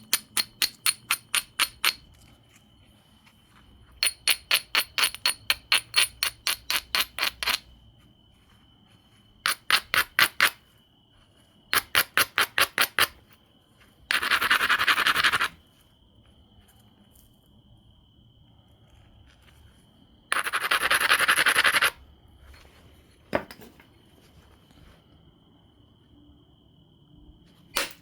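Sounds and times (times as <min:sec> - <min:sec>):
stone rubbing stone edge: 0:00.0 - 0:02.3, 0:03.9 - 0:07.8, 0:09.4 - 0:10.6, 0:11.7 - 0:13.3, 0:14.1 - 0:15.6, 0:20.3 - 0:22.0.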